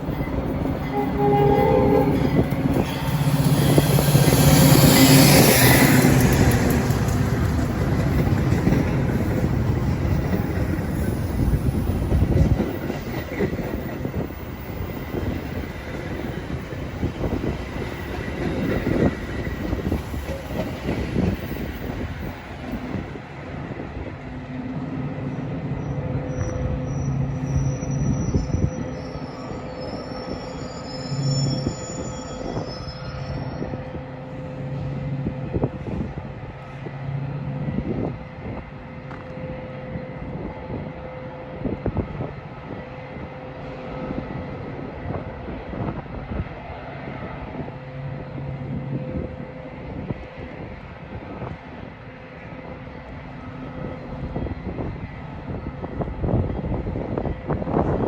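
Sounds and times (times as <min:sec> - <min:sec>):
high-pitched wheel squeal: 0:25.8 - 0:34.0.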